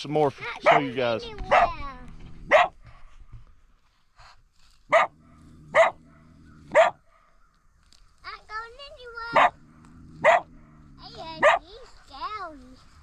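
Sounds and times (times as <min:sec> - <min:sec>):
coyote barking: 0:00.6 - 0:01.8, 0:02.5 - 0:02.8, 0:04.9 - 0:07.4, 0:09.0 - 0:12.0.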